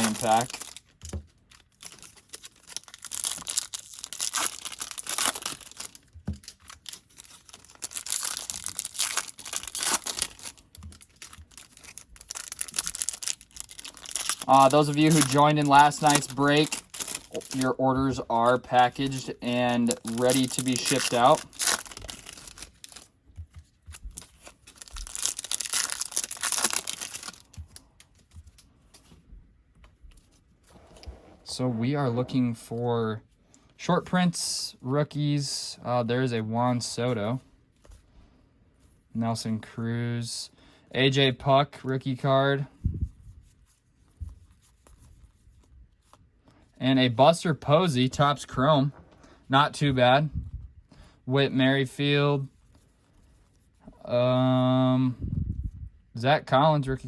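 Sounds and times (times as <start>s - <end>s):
plastic wrapping crinkling and tearing: 0.0s - 28.6s.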